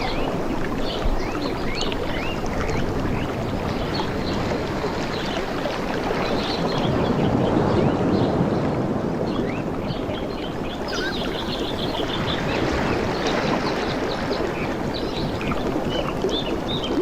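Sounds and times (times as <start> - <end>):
water lapping: 9.0 - 17.0
small birds chirping: 9.9 - 13.4.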